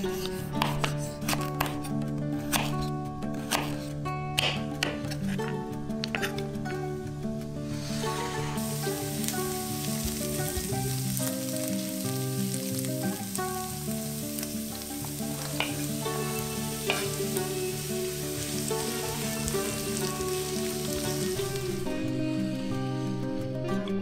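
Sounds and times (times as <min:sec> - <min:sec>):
soft background music: 0:00.0 - 0:24.0
onions sizzling in a wok: 0:07.5 - 0:23.2.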